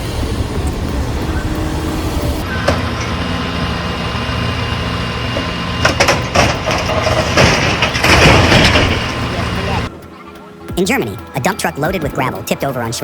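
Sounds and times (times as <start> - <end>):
rush of noise: 0.0 - 10.1
heavy vehicle engine humming: 0.0 - 12.1.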